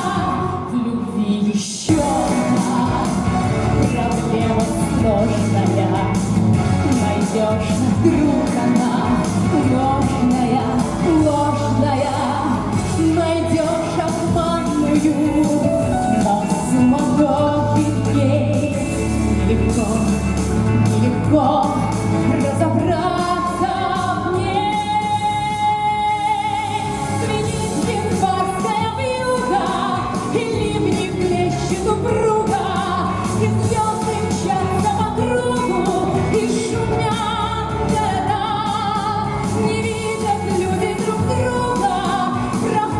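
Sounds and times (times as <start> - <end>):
woman singing: 0.0 - 42.9
band accompaniment: 1.9 - 42.9.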